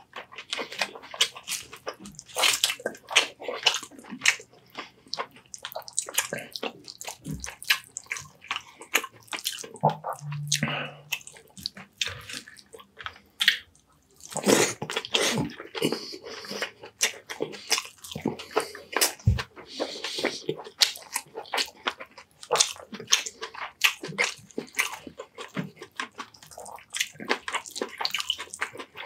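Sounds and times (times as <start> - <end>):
wet chewing and lip smacks: 0.0 - 29.0
brief low hum: 10.0 - 11.2.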